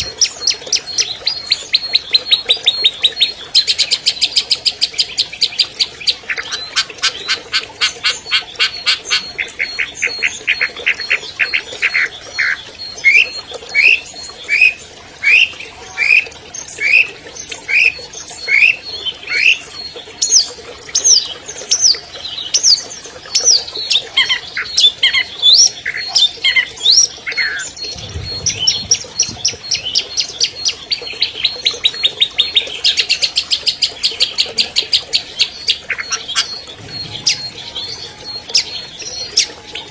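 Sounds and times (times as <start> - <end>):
shrike singing: 25.9 - 32.9, 35.2 - 39.9.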